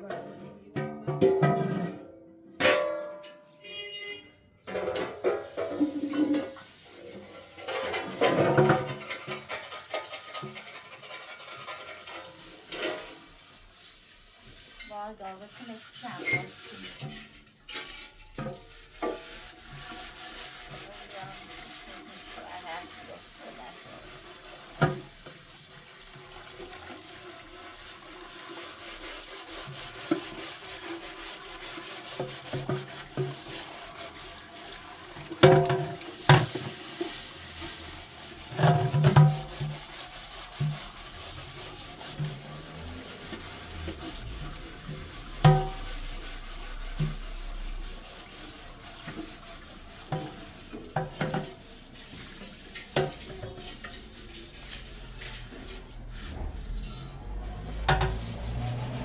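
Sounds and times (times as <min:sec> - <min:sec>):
scraping and stirring in a pan: 0:00.0 - 0:59.0
steady cooking hiss: 0:05.2 - 0:59.0
utensil knocking against pan: 0:35.0 - 0:37.2, 0:38.2 - 0:44.4, 0:45.0 - 0:46.1, 0:49.0 - 0:51.8, 0:57.1 - 0:58.8.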